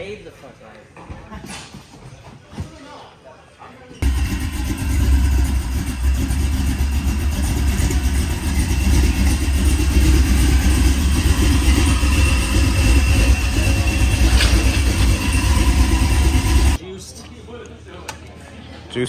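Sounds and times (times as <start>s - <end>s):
car engine deep exhaust rumble: 4.0s - 16.8s.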